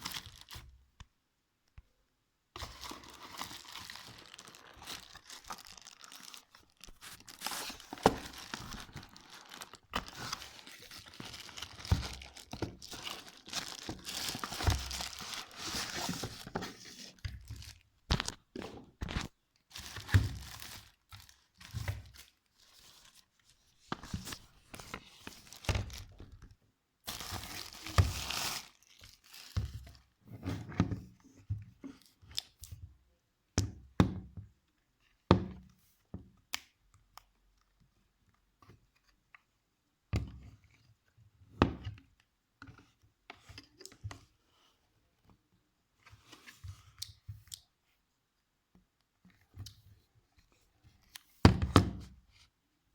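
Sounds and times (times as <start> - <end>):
wrapping tearing and crinkling: 0.0 - 0.6, 2.6 - 18.4, 19.0 - 23.3, 25.2 - 26.2, 27.1 - 30.0.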